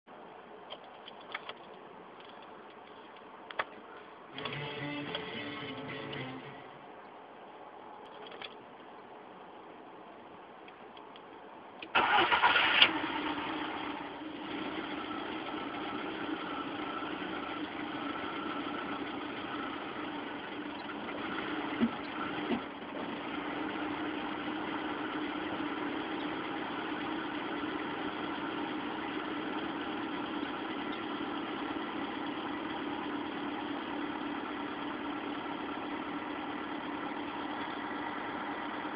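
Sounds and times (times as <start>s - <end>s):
car engine idling: 0.1s - 9.9s, 10.9s - 38.9s
engine cranking: 11.9s - 13.4s.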